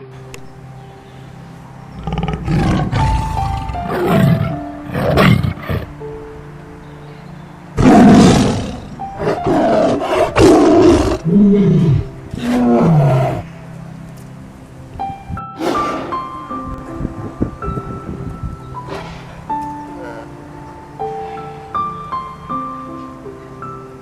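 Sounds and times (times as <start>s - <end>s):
soft background music: 0.0s - 24.0s
tiger roaring and growling: 1.9s - 5.9s, 7.8s - 13.5s.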